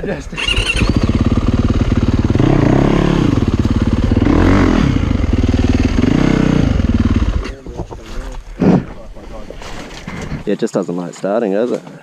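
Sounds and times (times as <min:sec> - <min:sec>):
dirt bike engine revving: 0:00.0 - 0:07.6.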